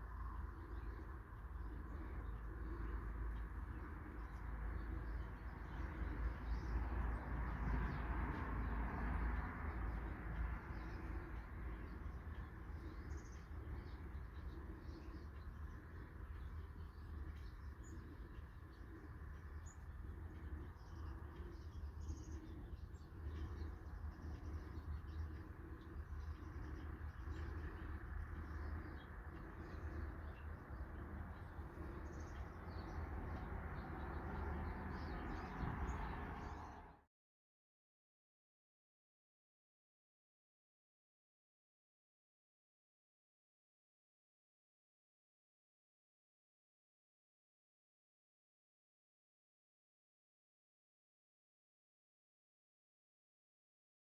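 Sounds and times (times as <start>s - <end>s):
small birds chirping: 0.0s - 36.9s
steady low rumble: 9.7s - 36.9s.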